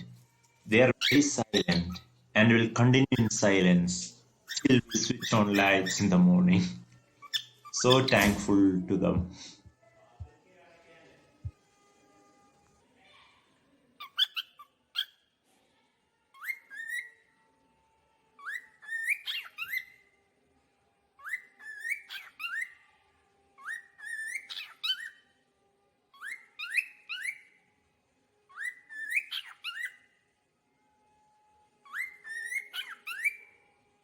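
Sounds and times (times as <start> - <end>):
cockatiel whistling: 1.0 - 2.1, 4.5 - 6.2, 16.4 - 17.2, 18.4 - 20.0, 21.2 - 22.8, 23.6 - 25.2, 26.2 - 27.5, 28.5 - 30.0, 31.9 - 33.5.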